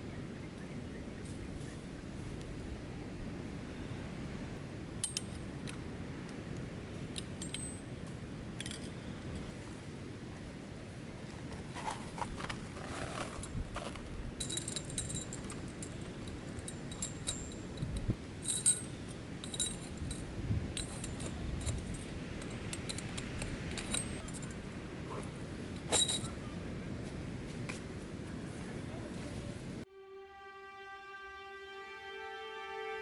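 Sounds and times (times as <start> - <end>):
metallic clinks of camp gear: 5.0 - 5.5, 7.1 - 9.2, 11.8 - 24.6, 25.8 - 26.4.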